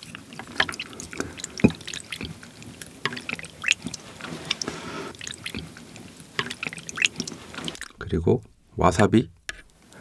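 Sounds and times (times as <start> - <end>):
broth sloshing and dripping: 0.0 - 8.0.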